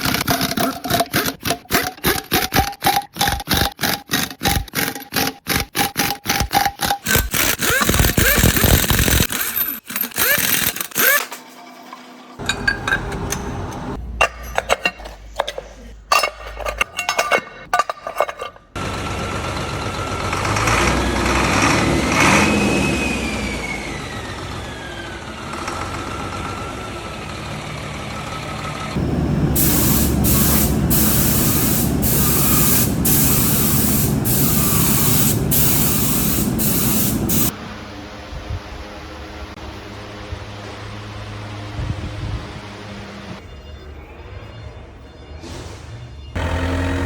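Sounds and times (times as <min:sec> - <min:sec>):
factory machinery whine: 0:18.8 - 0:47.0
loud hissing air: 0:29.4 - 0:37.6.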